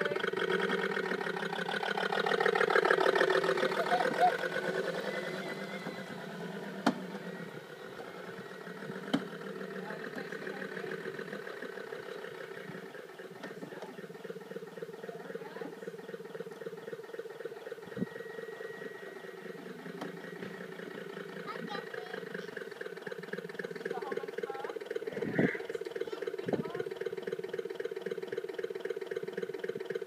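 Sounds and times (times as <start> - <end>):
simulated car engine idling: 0.0 - 30.0.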